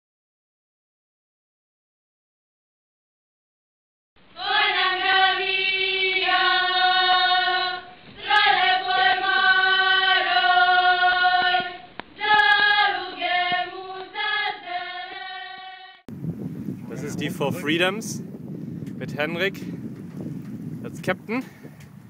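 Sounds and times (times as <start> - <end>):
choir singing: 4.3 - 16.1.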